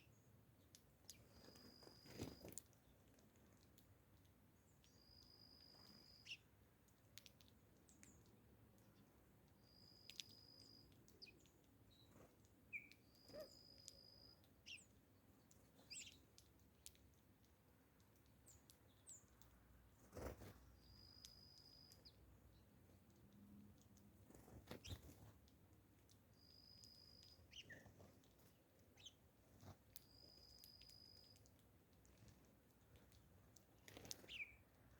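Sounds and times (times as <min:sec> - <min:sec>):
short bird chirps: 0:04.9 - 0:06.4, 0:12.7 - 0:14.8.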